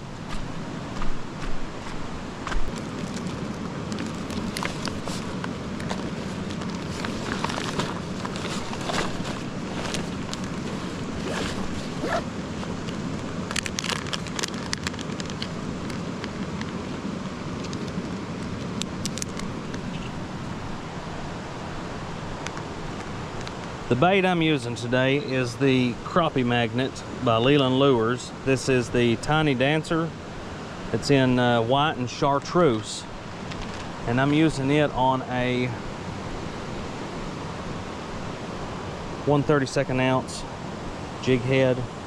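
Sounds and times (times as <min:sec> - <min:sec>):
flowing creek water: 0:00.0 - 0:18.6
handling clicks and rustles: 0:00.0 - 0:20.6, 0:33.4 - 0:34.7.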